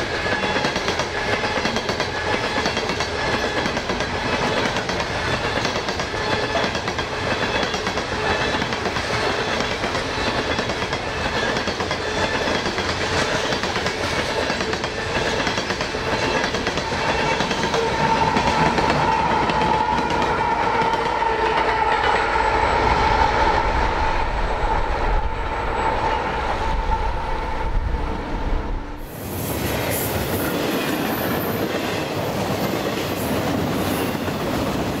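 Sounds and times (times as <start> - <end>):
train cars clacking on rails: 0.0 - 22.6, 29.6 - 35.0.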